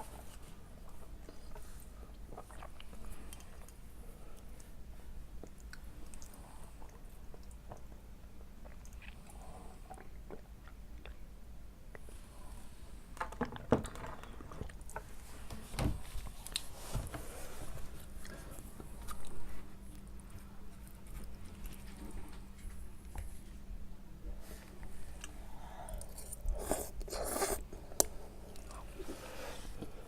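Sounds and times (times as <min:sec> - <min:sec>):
person chewing: 0:00.8 - 0:03.8, 0:05.4 - 0:11.2, 0:25.2 - 0:30.0.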